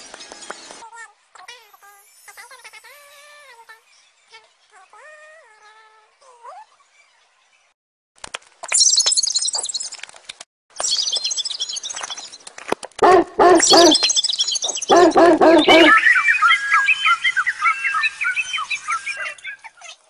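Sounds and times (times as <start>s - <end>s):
high bird-like chirps and trills: 1.4s - 5.9s, 8.7s - 10.0s, 10.8s - 12.4s, 13.1s - 20.0s
lower chattering calls: 13.1s - 19.9s.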